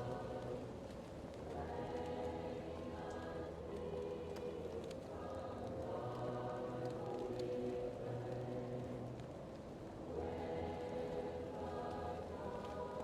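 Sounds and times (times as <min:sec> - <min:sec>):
fireplace crackling: 0:00.0 - 0:13.0
muffled choir singing: 0:00.0 - 0:13.0.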